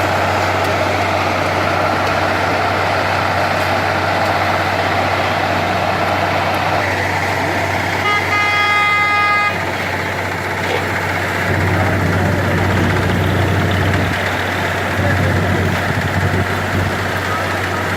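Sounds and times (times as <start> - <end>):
heavy vehicle engines humming: 0.0 - 17.9
vehicle horn: 7.9 - 9.8.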